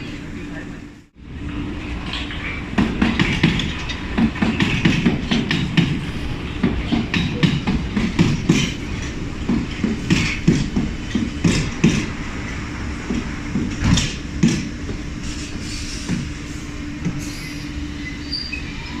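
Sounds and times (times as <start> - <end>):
train rumble and hum: 0.0 - 19.0
wheels clacking over rail joints: 1.4 - 16.4.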